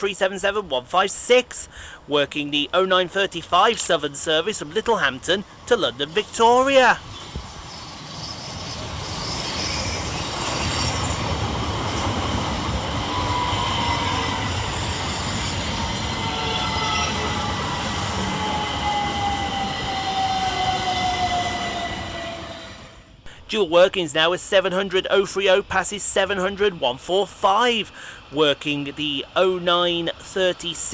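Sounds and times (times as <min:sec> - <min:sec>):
train wheels rumbling over rails: 0:02.7 - 0:23.2
train whine falling in pitch: 0:08.4 - 0:23.2.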